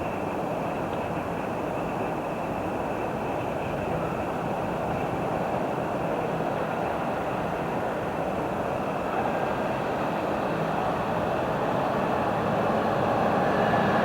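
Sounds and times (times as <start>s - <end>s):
train rolling on rails: 0.0s - 14.0s.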